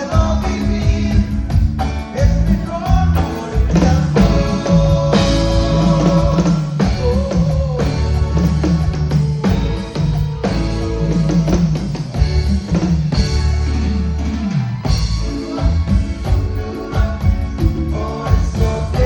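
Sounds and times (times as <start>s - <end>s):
live cumbia band playing: 0.0s - 19.0s.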